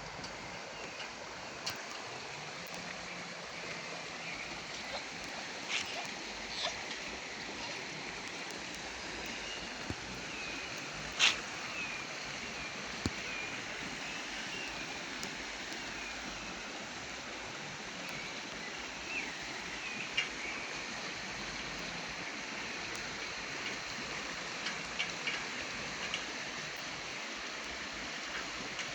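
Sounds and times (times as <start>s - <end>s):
steady rain hiss: 0.0s - 28.9s
drips and taps: 4.4s - 13.3s, 24.6s - 26.3s.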